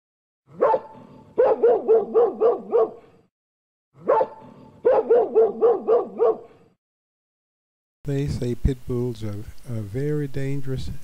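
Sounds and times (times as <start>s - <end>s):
dog barking: 0.5s - 3.3s, 4.0s - 6.8s.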